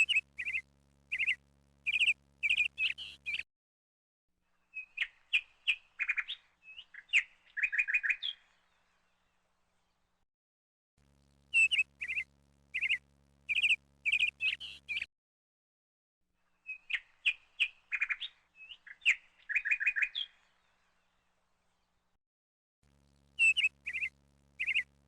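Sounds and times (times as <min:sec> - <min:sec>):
songbirds chirping and trilling: 0:00.0 - 0:03.4, 0:04.6 - 0:10.1, 0:11.5 - 0:15.1, 0:16.6 - 0:22.0, 0:23.4 - 0:24.9.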